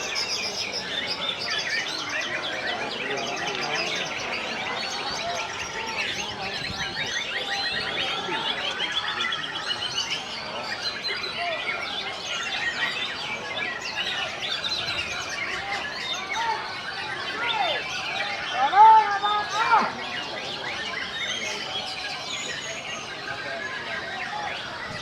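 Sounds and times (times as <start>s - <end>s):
songbirds singing: 0.0s - 25.0s.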